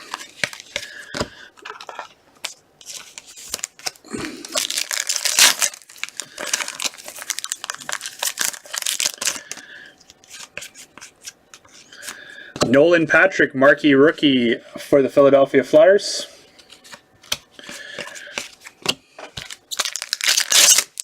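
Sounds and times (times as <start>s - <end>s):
wrapper crinkling and tearing: 1.6s - 9.6s, 19.4s - 21.0s.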